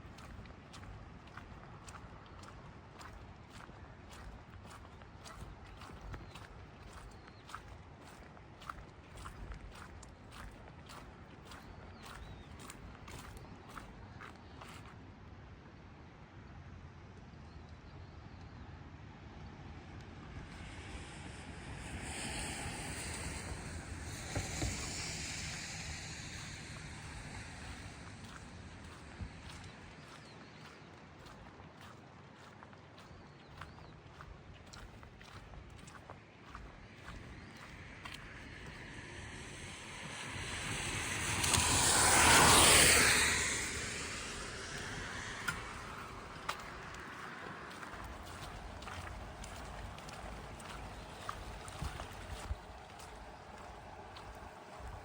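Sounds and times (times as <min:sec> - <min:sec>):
vehicle tyres hissing on wet road: 0:20.2 - 0:30.6, 0:36.8 - 0:55.0
rain patter: 0:35.8 - 0:55.0.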